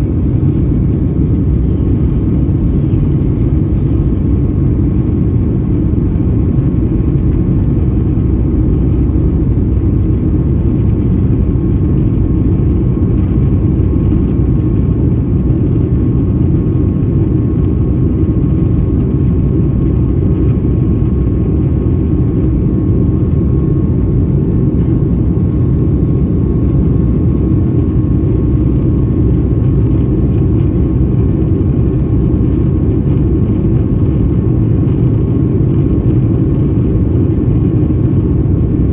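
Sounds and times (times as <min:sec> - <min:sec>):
airplane cabin rumble: 0:00.0 - 0:38.9.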